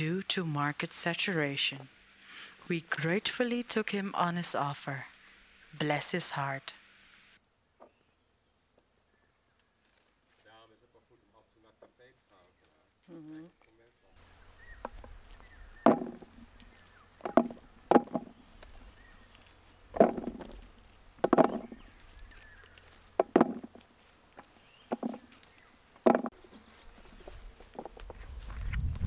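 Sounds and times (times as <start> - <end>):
knocks and thuds: 15.8 - 16.4, 17.2 - 18.4, 19.9 - 20.6, 21.2 - 21.8, 23.2 - 23.8, 24.9 - 25.2, 26.0 - 26.3.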